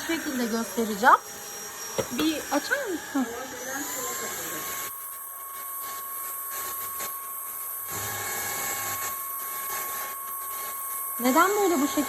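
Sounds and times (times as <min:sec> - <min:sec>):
stick vacuum motor whine: 0:00.0 - 0:12.0.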